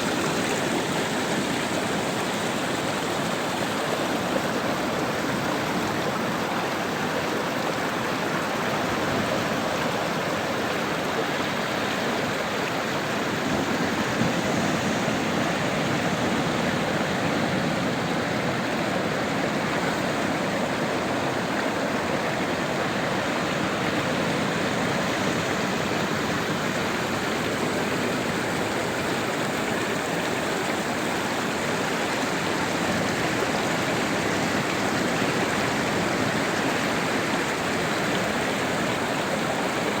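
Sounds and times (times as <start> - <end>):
sea surf rushing: 13.0 - 29.0.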